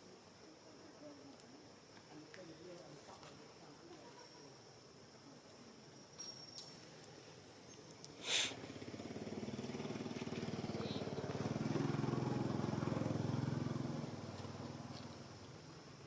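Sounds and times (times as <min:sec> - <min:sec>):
vehicle engine passing by: 0:08.5 - 0:15.0.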